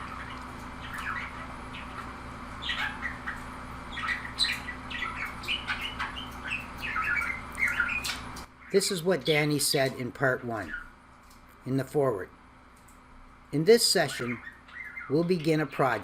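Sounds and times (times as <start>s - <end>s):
budgerigar chirping: 0.0s - 9.0s, 10.6s - 11.0s, 13.9s - 16.0s
low electrical hum: 0.0s - 16.0s.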